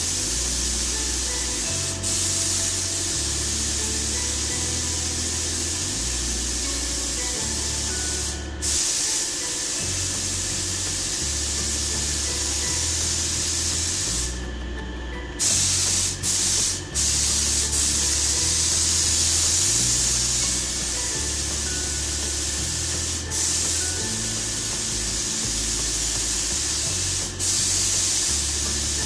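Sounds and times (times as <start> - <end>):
paint spray gun hissing: 0.0 - 14.5, 15.4 - 29.0.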